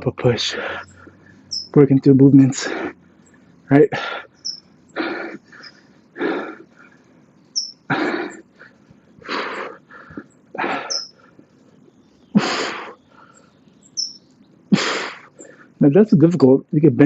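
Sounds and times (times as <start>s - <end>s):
bird chirping: 0.0s - 17.0s
man breathing heavily: 0.5s - 1.5s, 2.5s - 13.7s, 14.7s - 15.8s.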